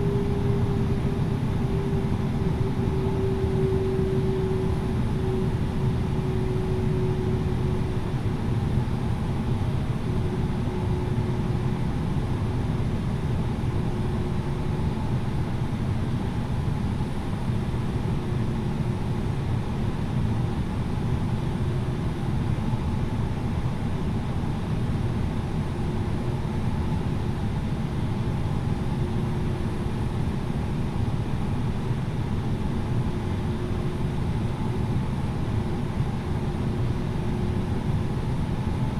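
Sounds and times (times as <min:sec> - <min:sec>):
faint wavering whine: 0:00.0 - 0:09.2
aircraft cabin rumble: 0:00.0 - 0:38.9.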